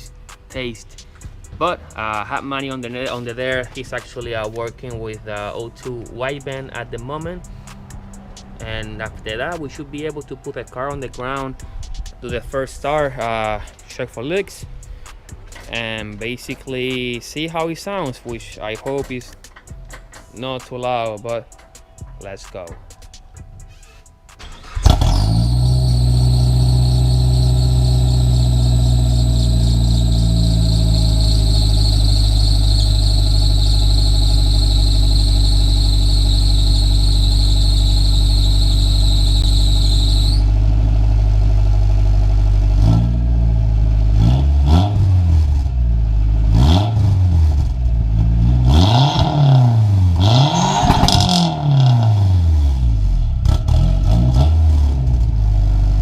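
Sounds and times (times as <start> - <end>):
car engine idling and revving: 0.0 - 13.9, 14.6 - 20.4, 21.1 - 56.0
high-pitched whine: 24.8 - 41.0.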